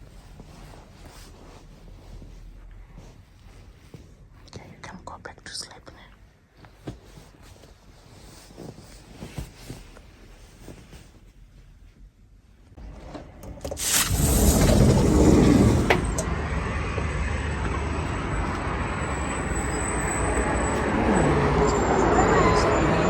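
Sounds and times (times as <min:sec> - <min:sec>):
vehicle road and engine noise: 0:13.0 - 0:23.0.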